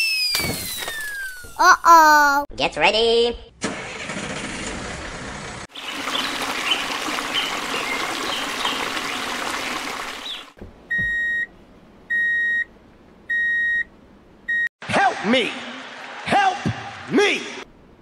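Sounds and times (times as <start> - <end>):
running splashing water: 5.4 - 10.6.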